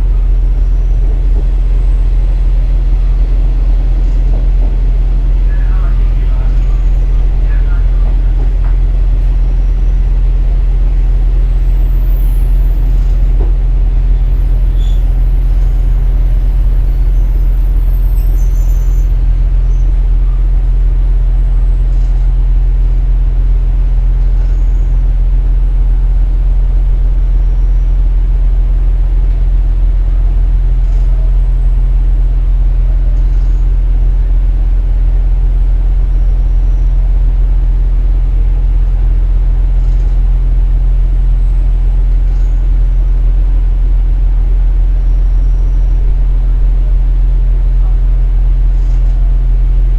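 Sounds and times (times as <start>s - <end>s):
low diesel drone: 0.0s - 49.9s
faint high squeals: 11.1s - 20.4s.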